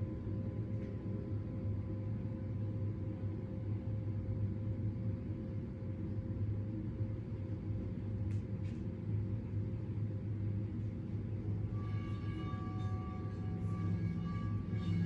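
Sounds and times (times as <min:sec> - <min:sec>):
low rumbling drone: 0:10.7 - 0:15.0
sustained ringing tone: 0:11.6 - 0:15.0.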